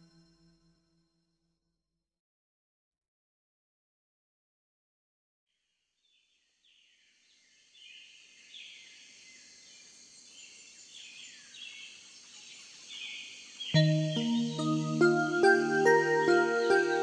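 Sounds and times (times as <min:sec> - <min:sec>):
birds chirping: 0:07.8 - 0:17.0.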